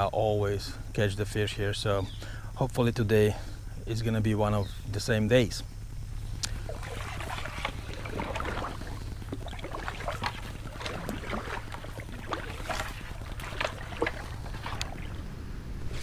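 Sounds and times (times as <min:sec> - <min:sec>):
wind rumble on microphone: 0:06.3 - 0:16.0
paddle splashes and drips: 0:06.4 - 0:15.4
paddle knocking on hull: 0:06.5 - 0:15.2.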